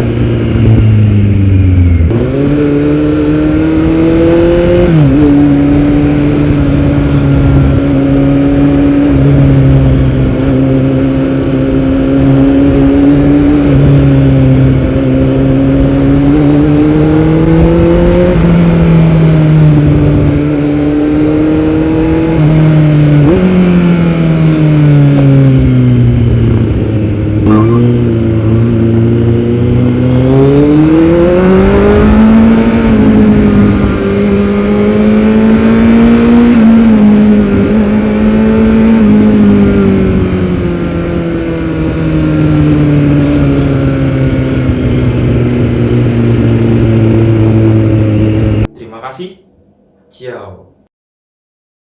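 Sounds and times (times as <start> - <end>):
motorcycle engine revving: 0.0 - 48.8.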